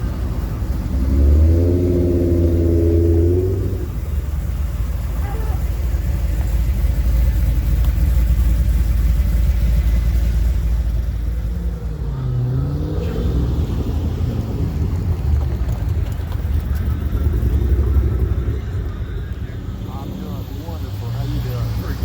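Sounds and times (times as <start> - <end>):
car engine rumbling past: 0.0 - 22.0.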